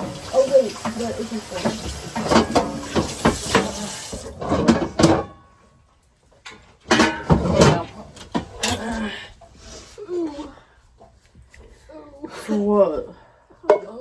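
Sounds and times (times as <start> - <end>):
pots and dishes clattering: 0.0 - 5.6, 6.4 - 9.0.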